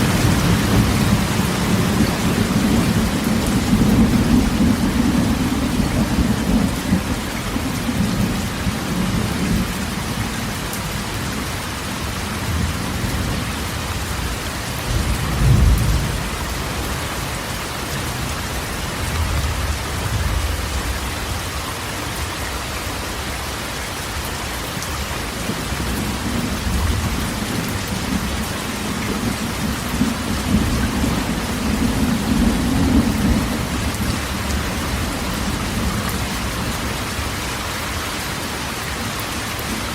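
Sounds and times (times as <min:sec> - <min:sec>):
low rolling thunder: 0:00.0 - 0:10.6, 0:12.0 - 0:17.4, 0:25.4 - 0:37.3
heavy rain on a metal roof: 0:00.0 - 0:39.9.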